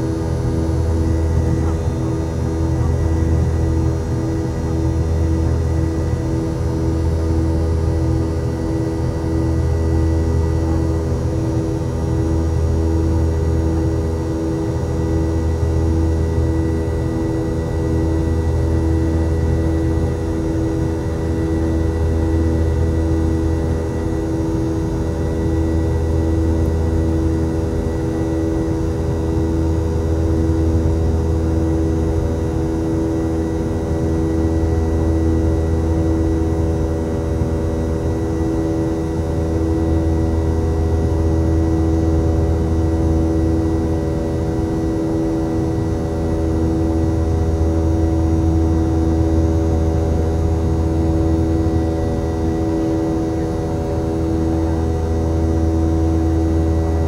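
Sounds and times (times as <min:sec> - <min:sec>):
jet engines droning in cabin: 0:00.0 - 0:57.0.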